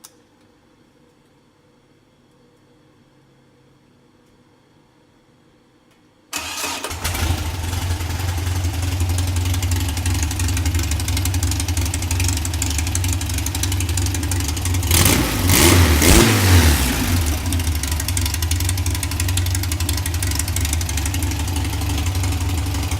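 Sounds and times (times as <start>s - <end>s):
car engine starting and idling: 6.4s - 22.9s.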